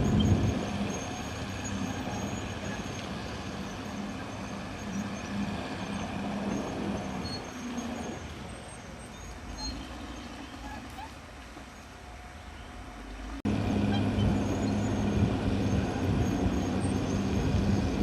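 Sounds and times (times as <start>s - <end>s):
bulldozer diesel engine droning: 0.0s - 18.0s.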